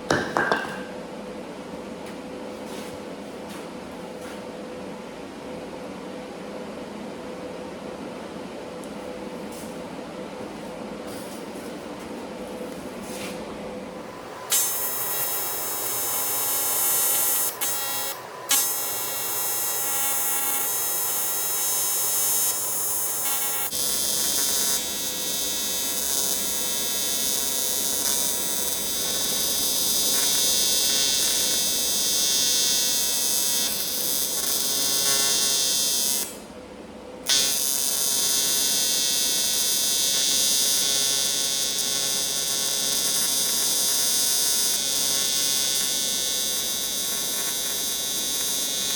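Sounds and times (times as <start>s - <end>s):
welding arc buzzing: 13.9s - 36.5s, 37.3s - 48.9s.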